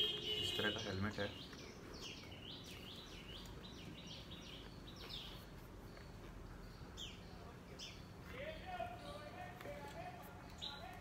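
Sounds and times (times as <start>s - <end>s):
bird chirping: 0.0s - 11.0s
faint background noise: 0.0s - 11.0s.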